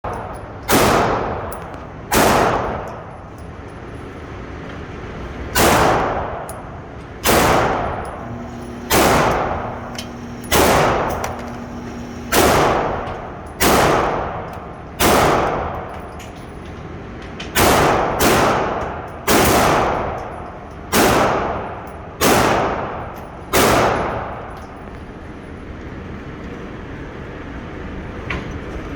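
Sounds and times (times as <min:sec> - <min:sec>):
pistol shots echoing: 0:00.6 - 0:03.0, 0:05.6 - 0:06.5, 0:07.2 - 0:08.2, 0:08.8 - 0:15.9, 0:17.6 - 0:20.2, 0:20.9 - 0:24.4.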